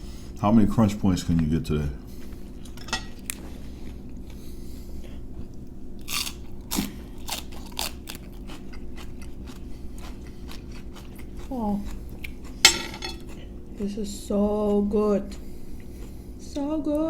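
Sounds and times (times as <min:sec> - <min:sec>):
steady low hum: 0:00.0 - 0:17.0
crunching and chewing pastry: 0:01.2 - 0:16.6.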